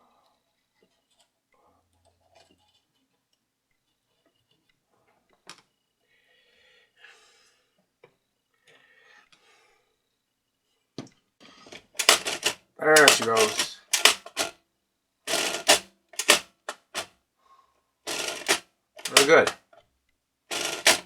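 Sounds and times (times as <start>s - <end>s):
small metal parts clicking: 11.7s - 14.5s, 15.3s - 17.1s, 18.1s - 19.6s, 20.5s - 21.0s.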